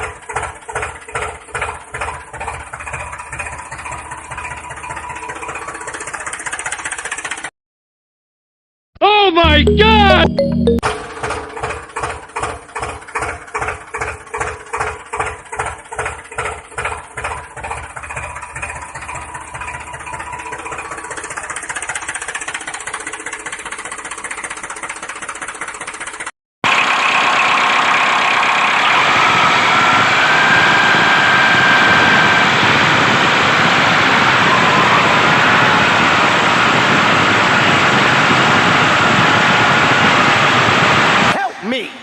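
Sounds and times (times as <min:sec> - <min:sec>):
small tractor engine chugging: 0:00.0 - 0:07.5, 0:10.9 - 0:29.4.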